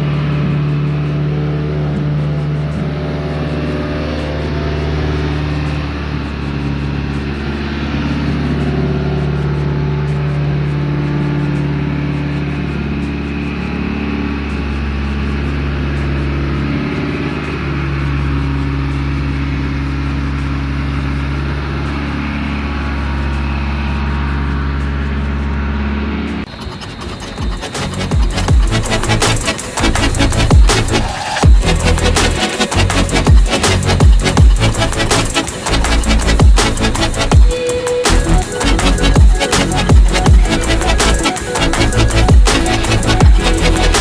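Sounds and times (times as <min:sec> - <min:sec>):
car engine running steadily: 0:27.4 - 0:44.0.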